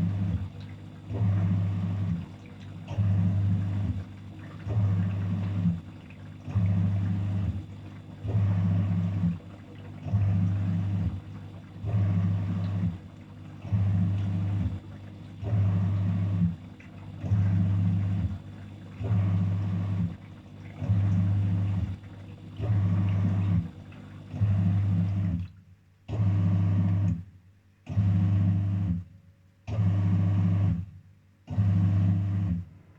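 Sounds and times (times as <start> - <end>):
washing machine motor humming: 0.0 - 25.5.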